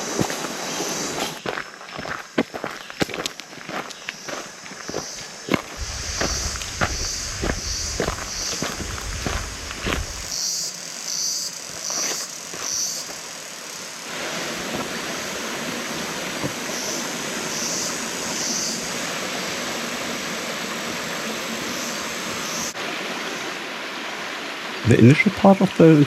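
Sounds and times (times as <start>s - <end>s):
footsteps on forest trail: 0.0s - 10.4s, 11.7s - 13.3s
water rushing from cascade: 4.9s - 10.3s, 13.0s - 26.0s.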